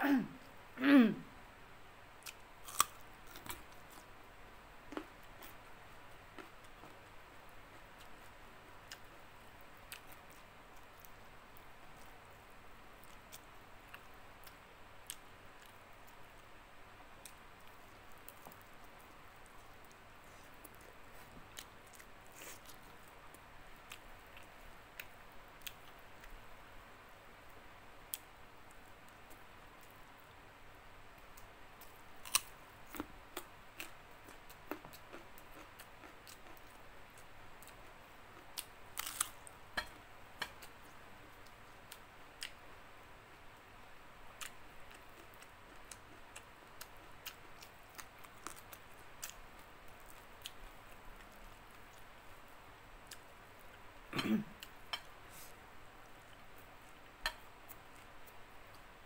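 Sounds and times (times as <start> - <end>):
person chewing: 2.2 - 4.1, 32.2 - 36.8, 38.4 - 40.8.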